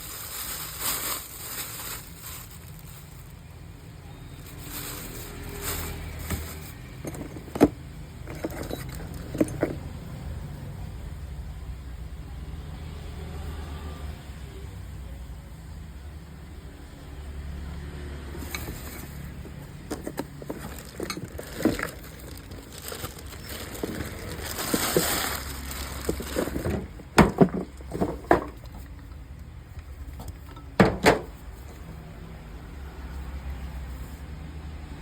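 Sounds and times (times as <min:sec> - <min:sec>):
handling clicks and rustling: 0:04.4 - 0:10.0, 0:18.4 - 0:32.0.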